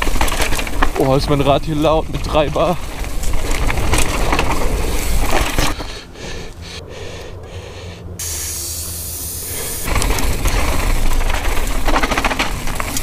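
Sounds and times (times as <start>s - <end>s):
steady rushing noise: 0.0s - 13.0s
air hissing from tyre valve: 8.2s - 9.9s.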